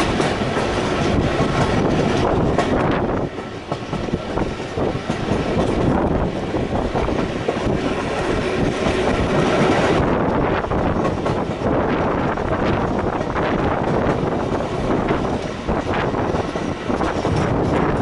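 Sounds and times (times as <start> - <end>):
train wheels clattering on rails: 0.0 - 18.0.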